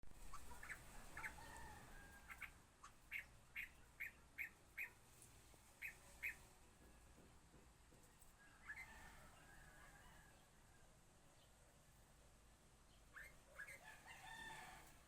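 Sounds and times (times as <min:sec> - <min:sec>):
faint bird calls: 0:00.2 - 0:05.0, 0:05.8 - 0:06.5, 0:12.9 - 0:13.9.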